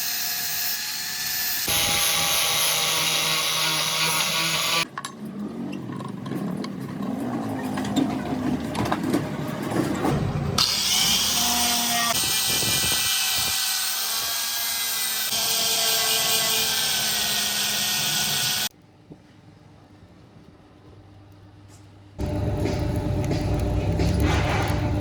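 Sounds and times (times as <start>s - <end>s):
power tool grinding steel: 0.0s - 4.9s, 10.6s - 18.7s.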